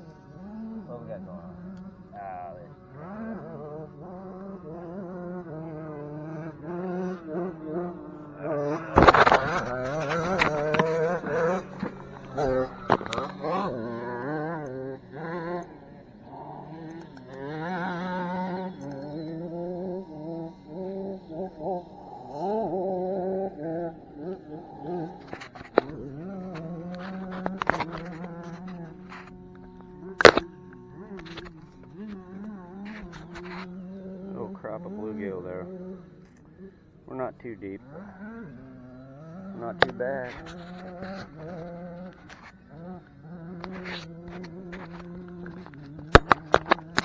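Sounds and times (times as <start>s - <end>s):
sharp clicks: 43.6s - 47.0s.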